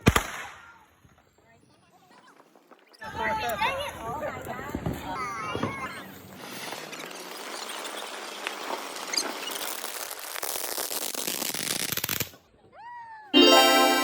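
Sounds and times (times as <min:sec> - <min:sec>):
fireworks crackling: 0:00.0 - 0:01.1, 0:06.3 - 0:12.4.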